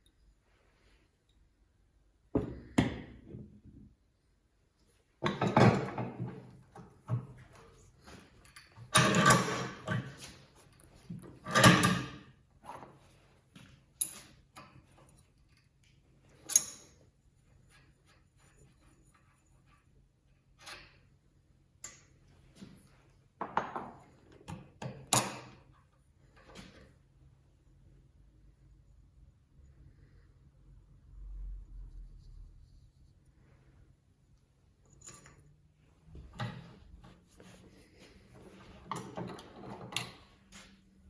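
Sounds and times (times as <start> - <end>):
tools knocking and clattering: 2.3 - 3.8, 5.2 - 13.0, 23.4 - 25.7, 34.9 - 37.6, 38.4 - 40.5.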